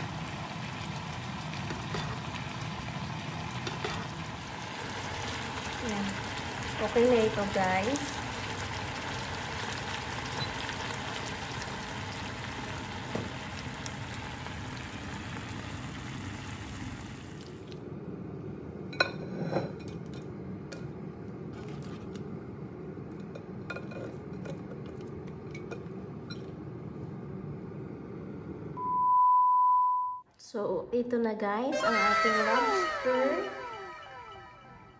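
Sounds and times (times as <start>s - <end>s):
sauce simmering in a frying pan: 0.0s - 17.8s.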